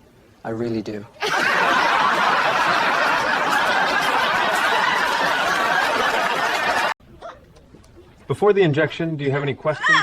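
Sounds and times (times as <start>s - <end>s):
crowd laughter: 1.2s - 7.0s.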